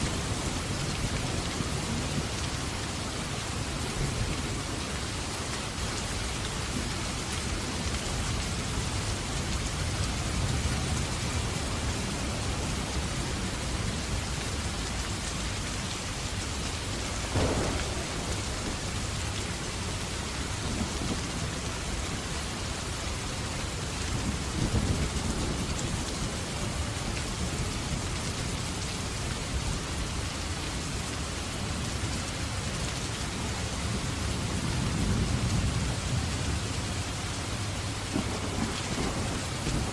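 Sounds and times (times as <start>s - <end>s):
steady rain: 0.0s - 39.9s
low rolls of thunder: 17.3s - 21.7s, 38.0s - 39.9s.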